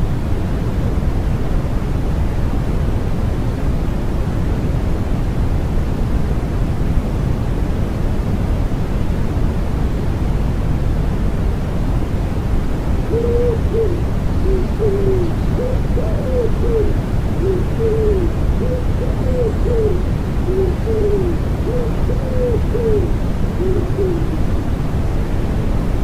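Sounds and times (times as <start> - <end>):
white noise: 0.0 - 26.0
pigeon cooing: 13.0 - 24.6.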